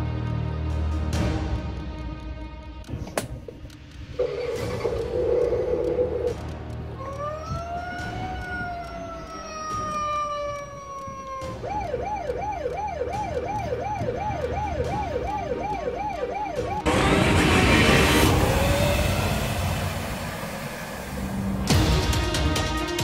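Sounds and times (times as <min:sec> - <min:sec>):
police siren wailing and yelping: 0:04.2 - 0:16.9
loud rushing noise: 0:16.9 - 0:22.1.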